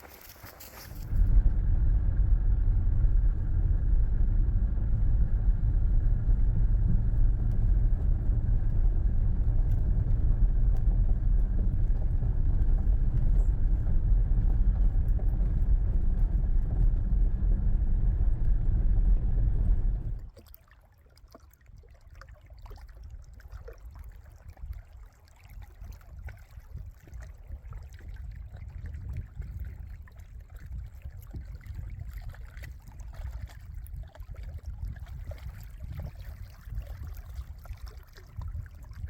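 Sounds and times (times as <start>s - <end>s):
car cabin road and engine noise: 1.0s - 20.3s.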